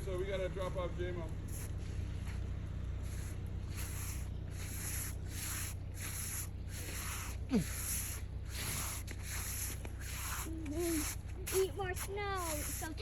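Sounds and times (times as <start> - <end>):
brush sweeping snow off car: 3.0 - 13.0.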